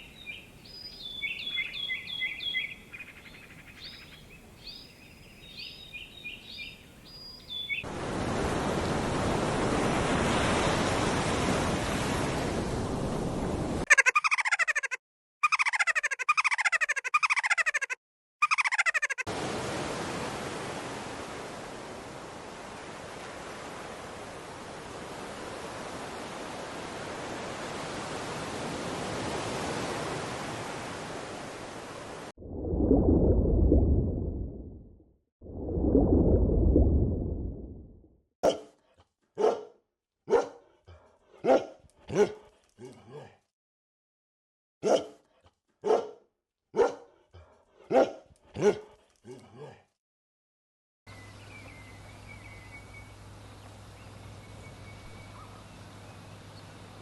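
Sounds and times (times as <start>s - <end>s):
small birds chirping: 0.0s - 7.9s, 51.1s - 57.0s.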